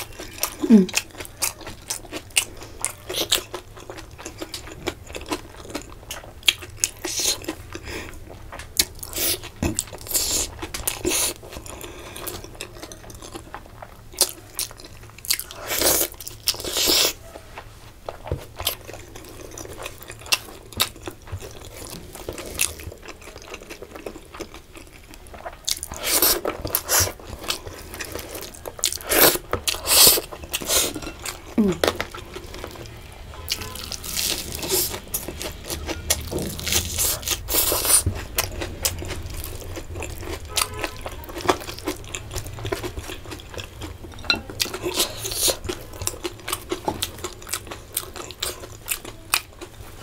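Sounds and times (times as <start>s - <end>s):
person chewing and crunching food: 0.0s - 50.0s.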